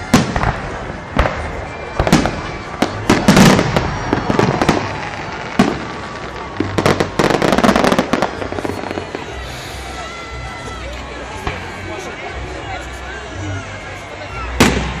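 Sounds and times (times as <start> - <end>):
fireworks bangs with crackling: 0.0 - 10.0, 14.5 - 15.0
steady rumble of fireworks: 0.0 - 15.0.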